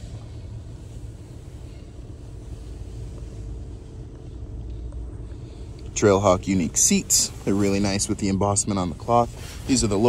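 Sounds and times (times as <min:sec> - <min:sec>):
car engine idling from inside: 0:00.0 - 0:10.0
faint hum: 0:00.0 - 0:10.0.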